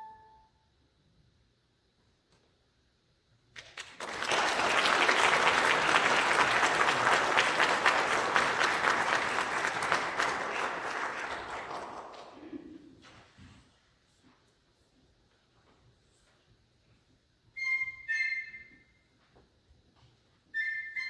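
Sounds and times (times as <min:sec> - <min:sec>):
audience applauding: 0:03.6 - 0:12.8.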